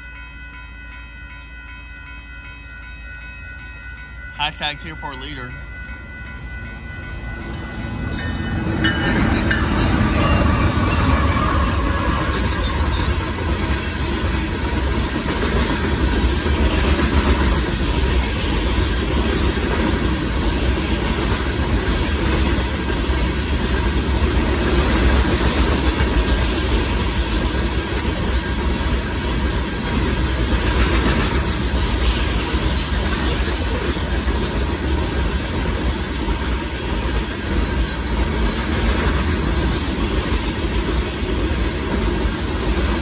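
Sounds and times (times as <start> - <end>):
diesel locomotive passing: 0.0 - 43.0
freight cars rumbling past: 7.2 - 27.1.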